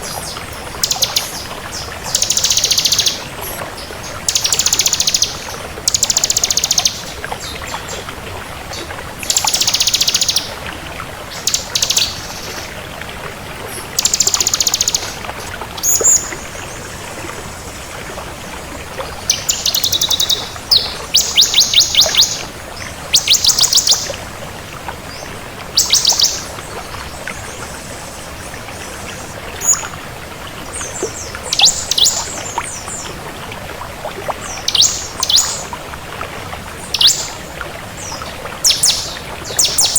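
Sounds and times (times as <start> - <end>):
bird chirps: 2.1 - 3.2, 14.0 - 15.2, 19.3 - 22.4, 25.8 - 26.4, 31.5 - 32.4, 34.6 - 35.6, 36.9 - 37.4, 38.1 - 39.9.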